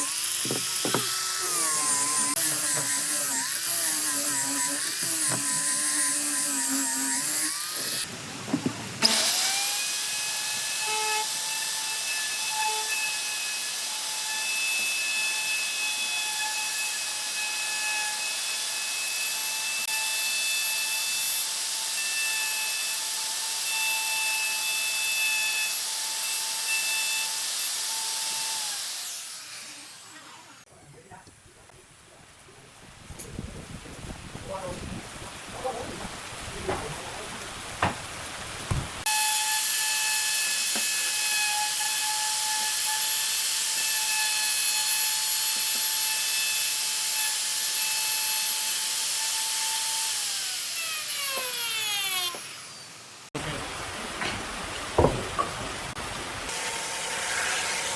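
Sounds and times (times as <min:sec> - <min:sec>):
power tool whining: 0:00.0 - 0:08.1, 0:09.0 - 0:20.6, 0:39.0 - 0:53.4.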